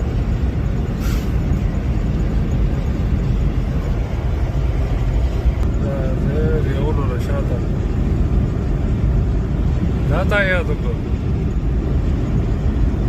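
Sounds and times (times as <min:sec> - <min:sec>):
truck engine rumble and road noise: 0:00.0 - 0:13.0
brief air hiss: 0:01.0 - 0:01.5.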